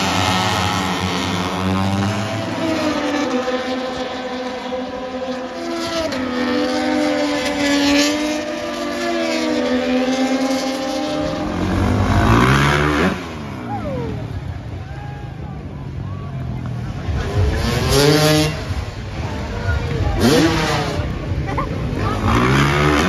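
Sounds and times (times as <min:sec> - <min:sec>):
motorcycle passing close: 0:00.0 - 0:14.8, 0:16.3 - 0:23.0
racing motorcycle engines revving: 0:00.0 - 0:23.0.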